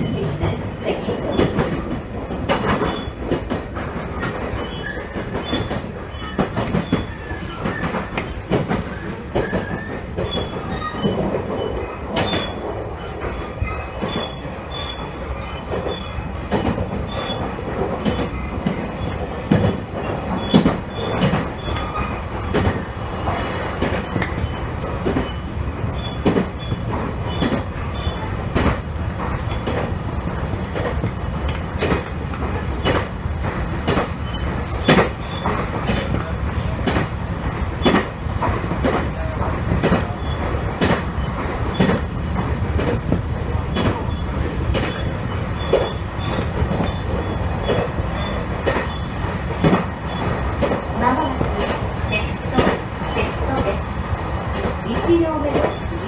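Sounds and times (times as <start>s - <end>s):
train rumble from inside: 0.0s - 56.0s
wheels clacking over rail joints: 0.0s - 56.0s
faint wheel squeals: 13.6s - 16.2s, 25.2s - 28.3s, 44.9s - 49.2s.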